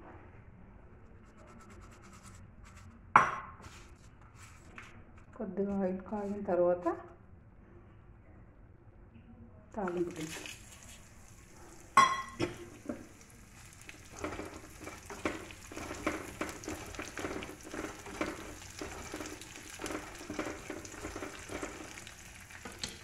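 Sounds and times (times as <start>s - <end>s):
spices sizzling in hot oil: 9.8s - 23.0s
wooden spatula stirring: 9.8s - 23.0s.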